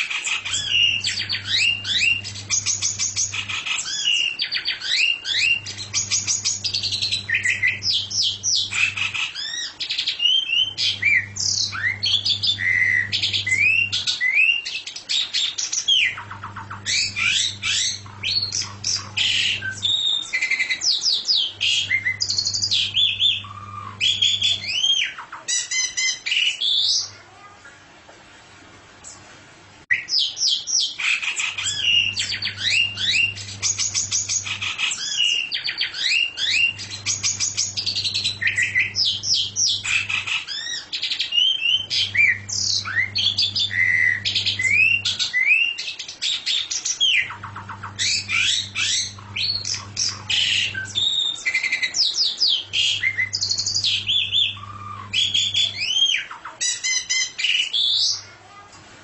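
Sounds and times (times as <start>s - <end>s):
songbird singing: 0.0s - 27.2s, 29.9s - 58.2s
low hum: 5.4s - 9.0s, 16.1s - 20.0s, 21.5s - 24.8s, 41.8s - 45.2s, 47.4s - 51.1s.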